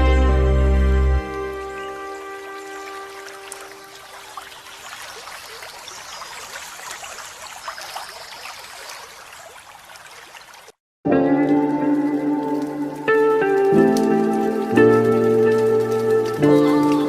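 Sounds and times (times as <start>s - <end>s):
held music chord: 0.0s - 4.0s, 11.1s - 17.0s
loud sustained music notes: 0.0s - 4.0s, 11.1s - 17.0s
water trickling in a stream: 1.2s - 10.8s, 11.4s - 17.0s.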